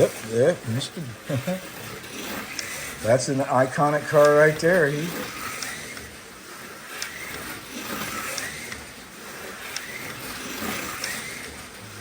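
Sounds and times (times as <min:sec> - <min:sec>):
plastic model cars clicking: 0:01.5 - 0:11.7.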